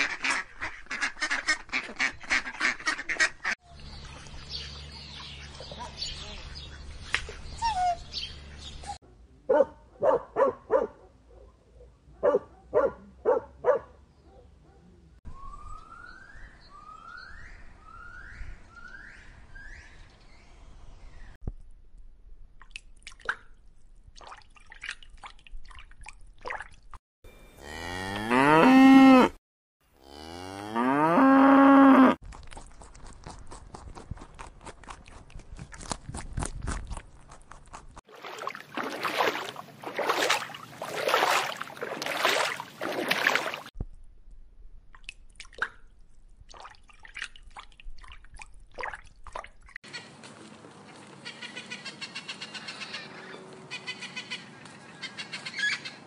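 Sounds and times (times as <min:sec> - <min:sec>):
cow mooing: 0:27.6 - 0:29.4, 0:30.0 - 0:32.2.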